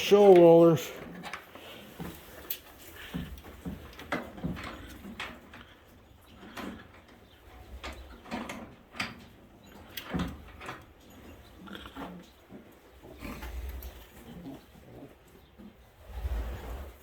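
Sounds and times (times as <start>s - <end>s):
pigeons knocking and rustling: 0.0s - 17.0s
low animal sound: 11.2s - 17.0s.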